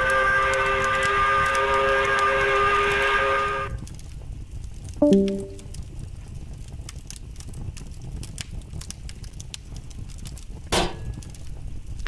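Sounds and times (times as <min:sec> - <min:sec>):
fireplace crackling: 0:03.7 - 0:10.6.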